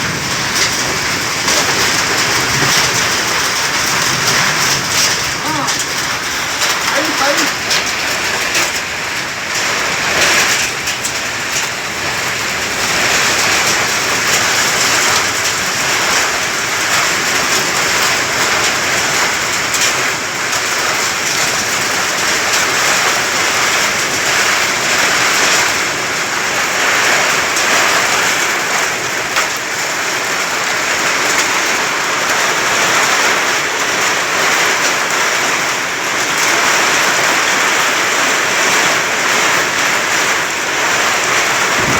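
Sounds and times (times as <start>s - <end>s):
wind and blown sand rushing: 41.7s - 41.9s.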